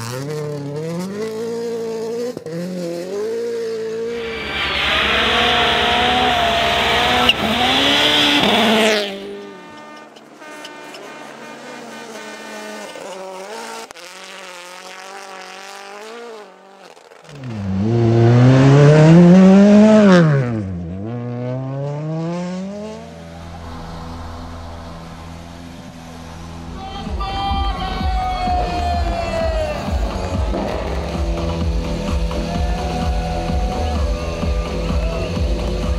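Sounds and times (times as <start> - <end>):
car passing with engine pitch shifting: 0.0 - 27.2
rally car engines at full throttle: 0.0 - 35.9.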